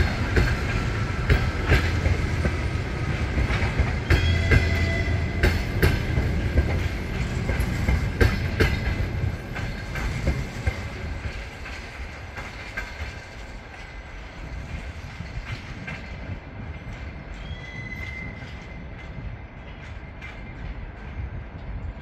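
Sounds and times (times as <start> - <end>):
train wheels clicking over rail joints: 0.0 - 22.0
train wheel squeal: 4.0 - 6.1, 15.3 - 21.3.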